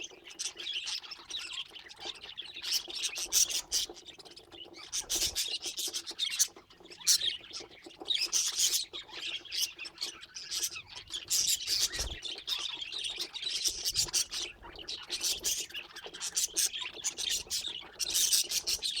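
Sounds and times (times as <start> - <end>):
budgerigars chirping: 0.2 - 19.0.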